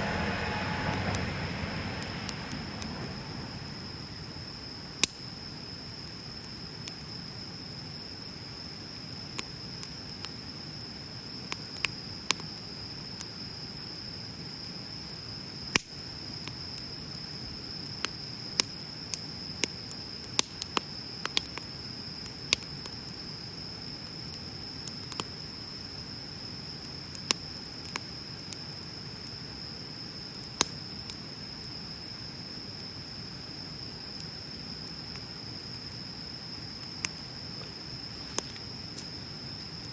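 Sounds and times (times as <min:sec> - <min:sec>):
bonfire flames rushing: 0:00.0 - 0:06.5
fire crackling and popping: 0:00.0 - 0:13.4, 0:14.7 - 0:39.9.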